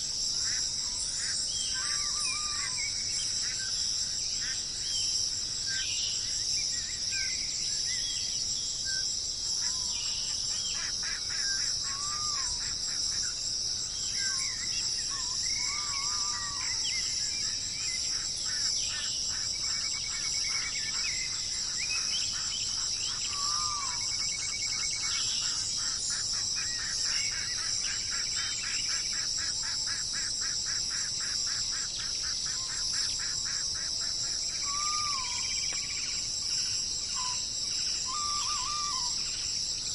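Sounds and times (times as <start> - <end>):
wild birds calling: 0.4 - 3.8, 9.6 - 39.9
high-pitched insect drone: 14.2 - 39.9.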